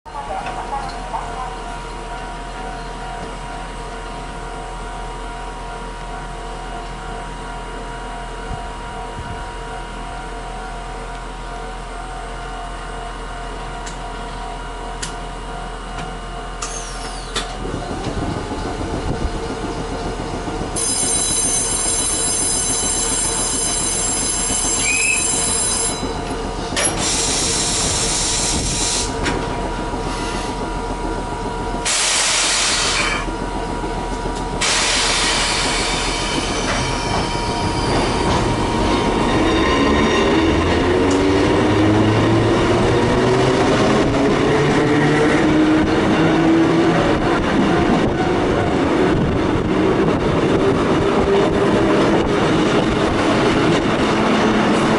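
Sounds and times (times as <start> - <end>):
electric rail car humming: 0.1 - 54.9
train running on rails: 0.1 - 54.9.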